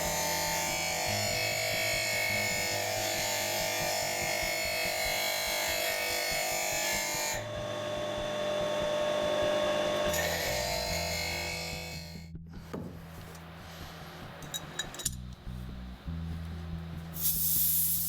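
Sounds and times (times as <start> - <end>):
electric power tool running: 0.0 - 12.3.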